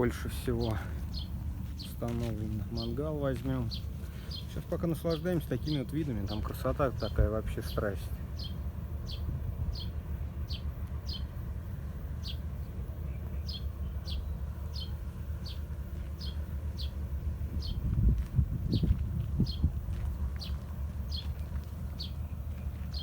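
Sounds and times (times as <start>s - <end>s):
steady low rumble: 0.0s - 23.0s
small bird chirping: 8.4s - 11.4s, 20.4s - 23.0s.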